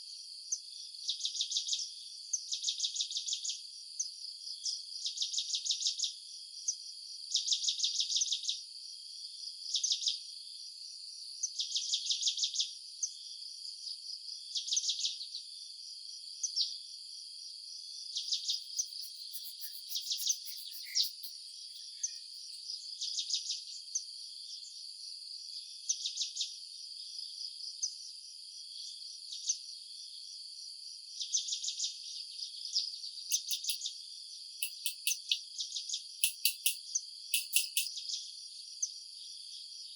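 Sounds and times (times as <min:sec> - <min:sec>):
high-pitched insect trill: 0:18.2 - 0:22.8, 0:33.3 - 0:33.9, 0:34.6 - 0:35.4, 0:36.2 - 0:38.0
insects chirping in bursts: 0:18.2 - 0:22.8, 0:33.3 - 0:33.9, 0:34.6 - 0:35.4, 0:36.2 - 0:38.0
very high ticking calls: 0:18.3 - 0:22.6, 0:33.3 - 0:33.9, 0:34.6 - 0:35.4, 0:36.2 - 0:36.8, 0:37.4 - 0:37.9.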